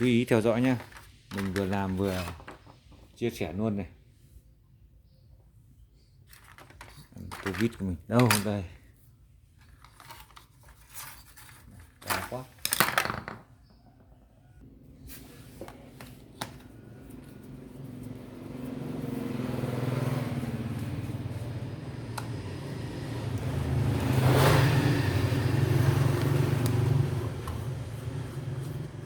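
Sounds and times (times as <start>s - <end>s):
vehicle engine passing by: 16.7s - 29.0s.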